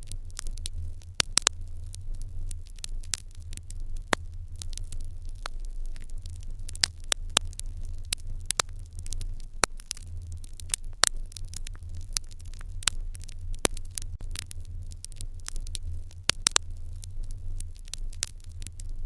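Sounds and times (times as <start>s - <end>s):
fire crackling and popping: 0.0s - 19.0s
low rumble: 0.0s - 19.0s.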